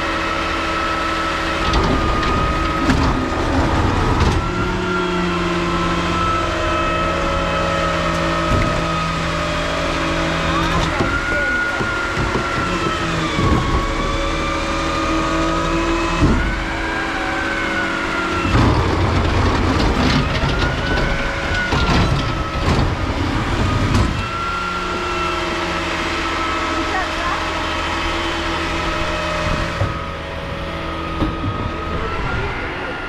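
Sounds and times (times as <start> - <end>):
garbage truck engine: 0.0 - 33.0
clattering and knocking: 10.5 - 14.2, 18.3 - 24.4.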